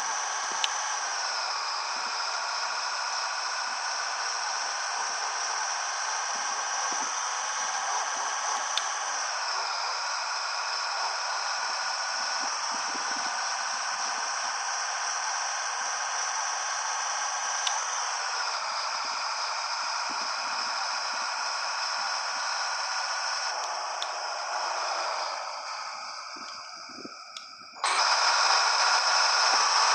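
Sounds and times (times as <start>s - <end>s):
diesel truck engine running: 0.0s - 29.9s
high whine: 17.6s - 29.9s.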